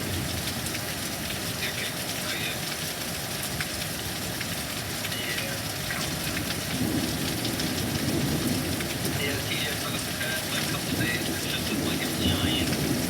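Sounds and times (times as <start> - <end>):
heavy rain hissing: 0.0 - 13.0
raindrops ticking: 0.0 - 13.0.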